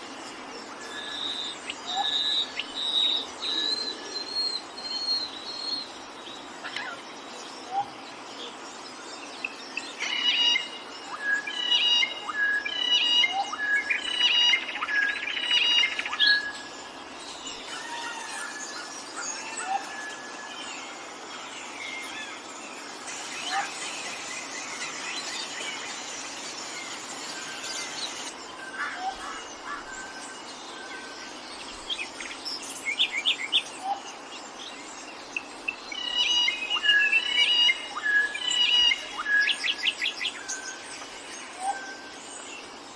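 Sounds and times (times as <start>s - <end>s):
birds chirping and singing: 0.0s - 42.9s
forest ambience hiss: 0.0s - 42.9s.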